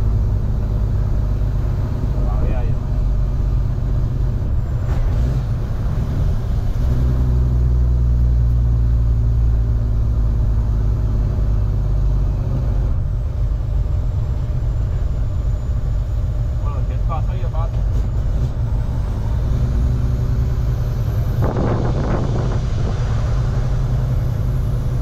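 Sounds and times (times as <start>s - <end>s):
diesel truck engine rumbling: 0.0s - 25.0s.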